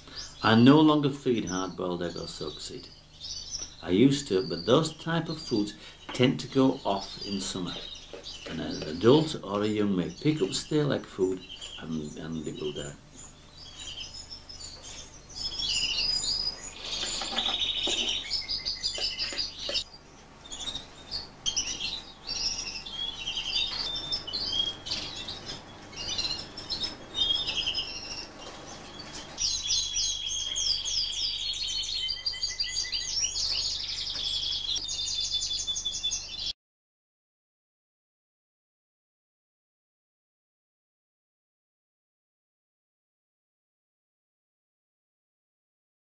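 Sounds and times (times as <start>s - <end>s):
canaries singing trills: 0.0s - 36.5s.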